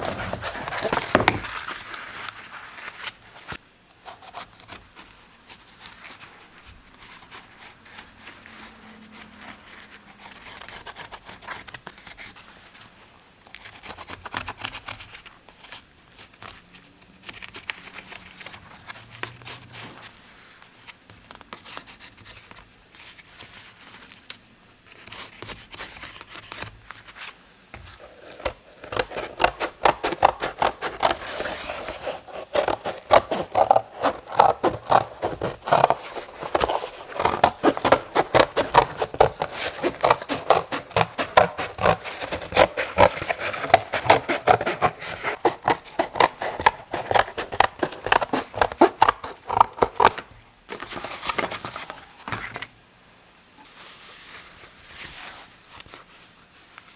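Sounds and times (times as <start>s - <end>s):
scraping on bicycle saddle: 0.0s - 3.6s, 25.2s - 52.6s.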